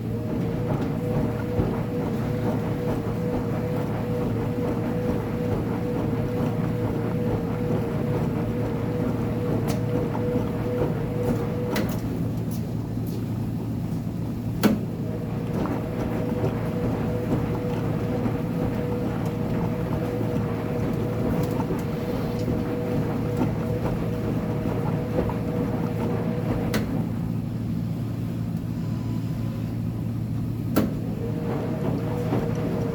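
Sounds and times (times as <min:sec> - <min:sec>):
washing machine motor hum and whine: 0:00.0 - 0:32.9
washing machine clicks: 0:00.5 - 0:12.7, 0:14.6 - 0:17.9, 0:18.6 - 0:27.2, 0:30.6 - 0:32.9.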